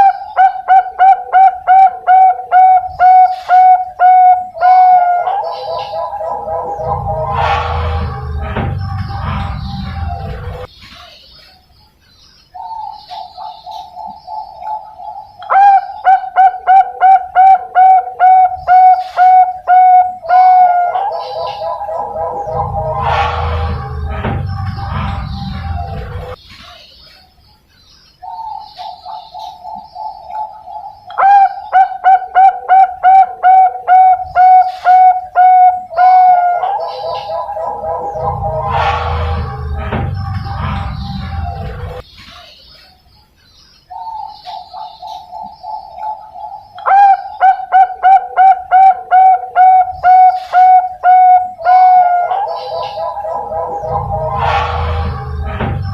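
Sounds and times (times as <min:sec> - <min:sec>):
dove cooing: 0:00.0 - 0:07.9, 0:12.7 - 0:23.4, 0:28.8 - 0:38.8, 0:44.0 - 0:55.4.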